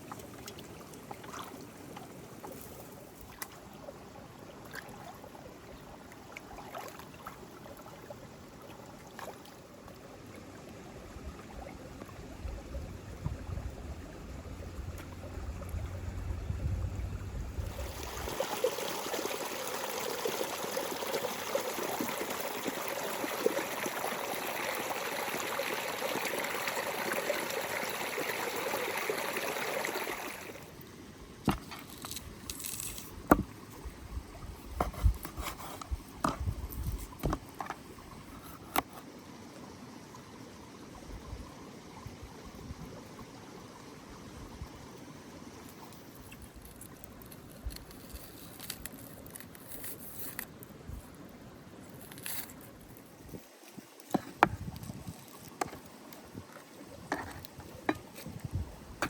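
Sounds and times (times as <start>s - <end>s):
water pouring: 17.6s - 30.6s.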